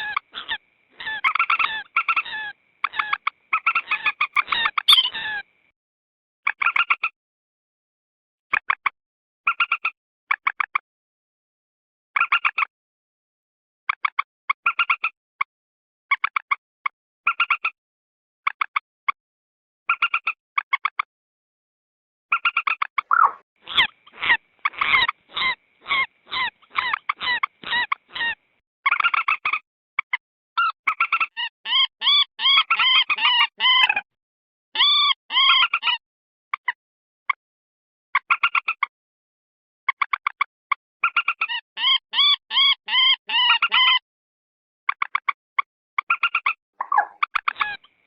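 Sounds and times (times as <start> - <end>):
moorhen calls: 0.0 - 5.4, 23.1 - 28.4, 46.8 - 47.8.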